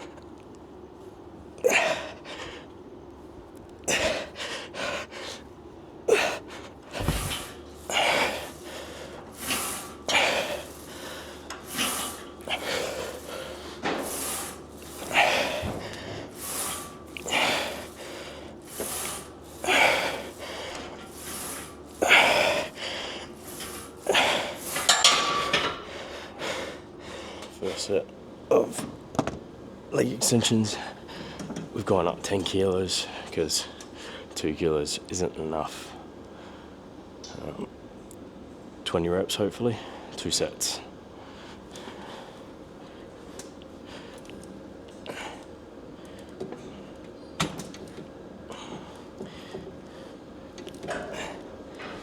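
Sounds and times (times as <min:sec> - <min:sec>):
man breathing hard: 0:03.9 - 0:05.5, 0:06.1 - 0:27.9, 0:48.5 - 0:50.3.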